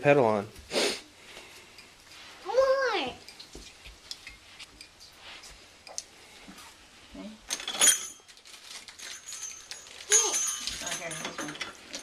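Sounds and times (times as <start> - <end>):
ornaments clinking and jingling: 7.5 - 12.0.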